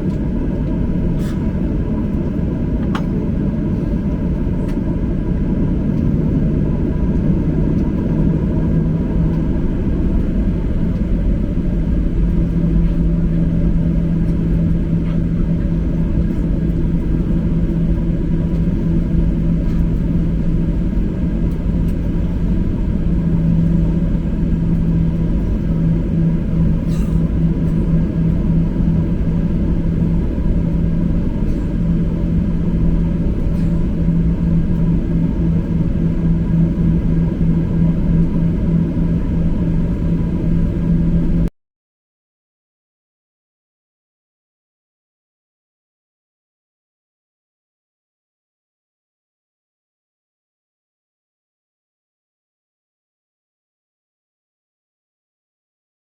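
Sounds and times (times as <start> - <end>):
aircraft cabin rumble: 0.0 - 41.5
steady hum: 0.0 - 41.5.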